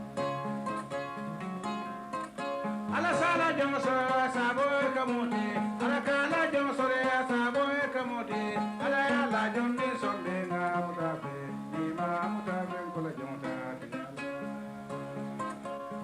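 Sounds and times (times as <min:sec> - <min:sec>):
harp-lute plucked melody: 0:00.0 - 0:16.0
person singing: 0:02.9 - 0:14.4.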